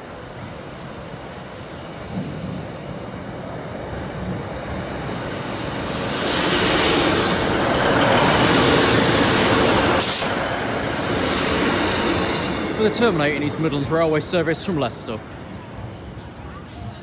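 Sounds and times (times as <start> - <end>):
diesel train running past: 0.0 - 17.0.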